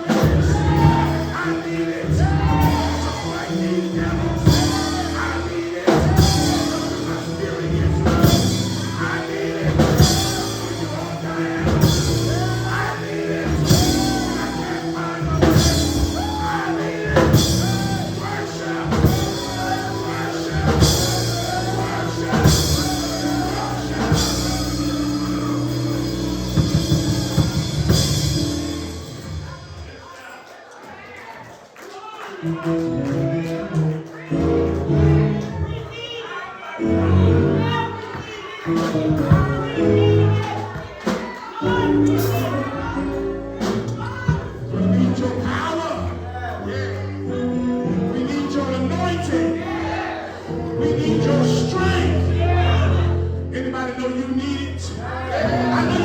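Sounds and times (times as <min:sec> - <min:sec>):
drum kit striking: 0:00.0 - 0:29.7, 0:38.8 - 0:42.7, 0:43.6 - 0:44.7.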